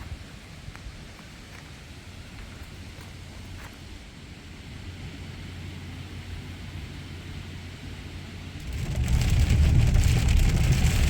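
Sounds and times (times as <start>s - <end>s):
low steady rumble: 2.8s - 11.0s
wind buffeting microphone: 8.6s - 11.0s.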